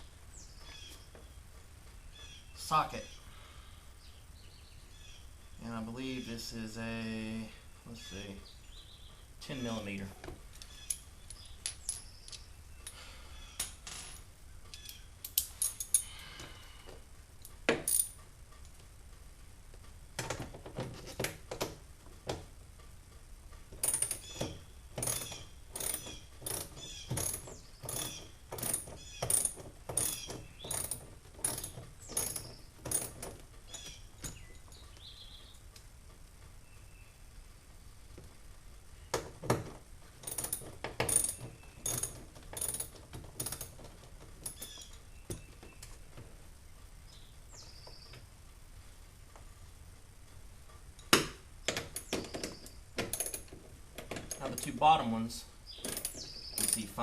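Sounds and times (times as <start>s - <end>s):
ratchet clicking: 25.0s - 33.8s, 40.2s - 43.7s, 55.8s - 57.0s.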